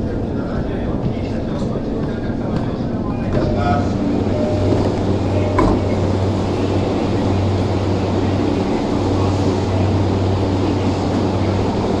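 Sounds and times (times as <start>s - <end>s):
train equipment humming: 0.0s - 12.0s
platform bustle: 3.2s - 10.8s.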